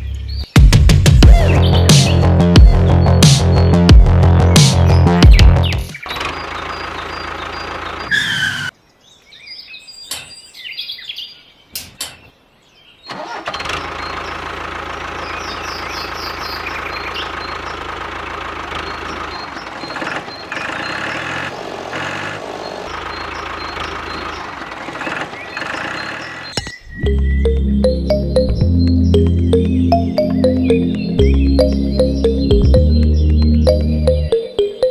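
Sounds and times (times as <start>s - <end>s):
small diesel engine running: 6.1s - 8.1s, 13.1s - 26.5s.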